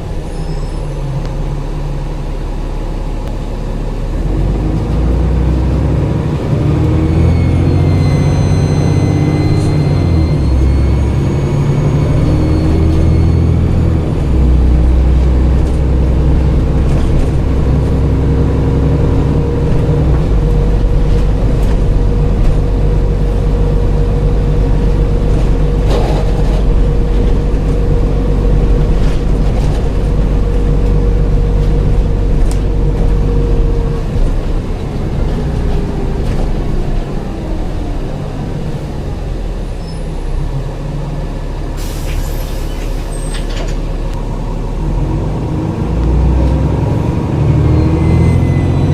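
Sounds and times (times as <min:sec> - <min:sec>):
bus diesel engine running hard: 0:00.0 - 0:48.9
turbo whistle: 0:07.1 - 0:13.6
air hiss: 0:41.8 - 0:43.1.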